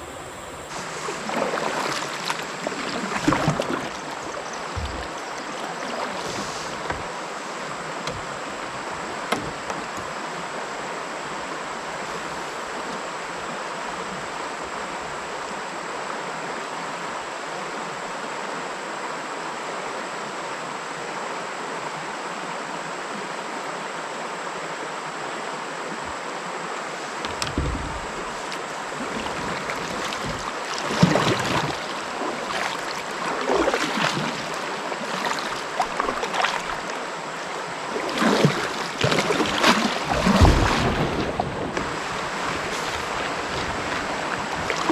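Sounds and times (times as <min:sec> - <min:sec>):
creek water flowing: 0:00.0 - 0:19.7, 0:22.3 - 0:44.9
small knocks: 0:27.2 - 0:30.5.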